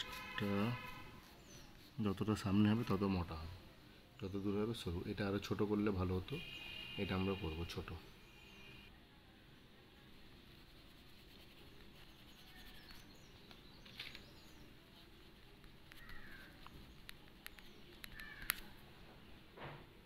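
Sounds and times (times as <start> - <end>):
faint bird chirps: 4.2 - 10.1, 11.2 - 15.1, 15.9 - 18.8.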